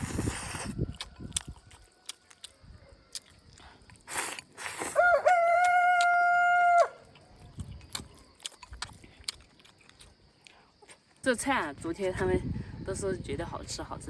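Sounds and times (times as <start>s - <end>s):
rooster crowing: 5.0s - 7.1s.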